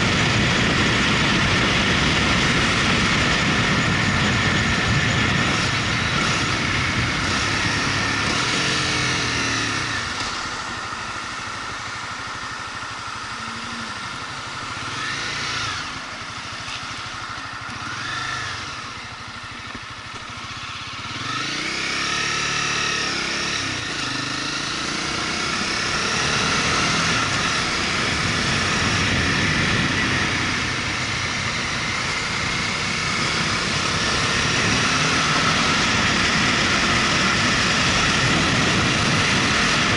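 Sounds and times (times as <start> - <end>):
wind noise: 0.0 - 11.0, 23.2 - 39.9
motorcycle engine running: 0.0 - 39.9.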